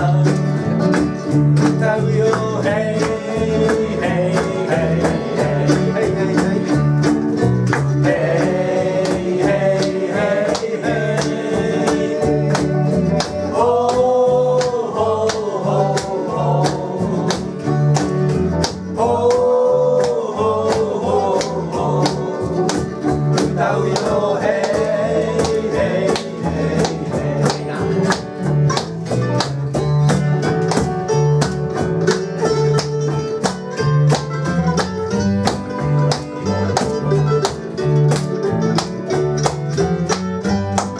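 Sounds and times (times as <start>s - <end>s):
person singing: 0.0s - 0.7s, 1.5s - 7.2s, 7.9s - 18.0s, 18.9s - 28.2s
acoustic guitar strumming: 0.0s - 40.9s.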